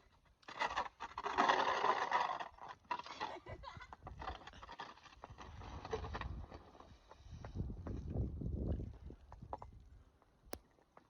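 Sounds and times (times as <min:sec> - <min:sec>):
wind rumble on microphone: 0:05.3 - 0:10.6.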